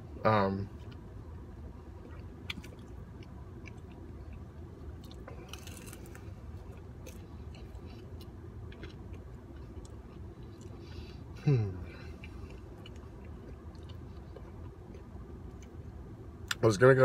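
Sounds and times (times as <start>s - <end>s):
steady low hum: 0.0s - 17.0s
chewing and biting food: 2.0s - 11.2s, 12.0s - 15.8s
crunch of food: 5.0s - 7.3s.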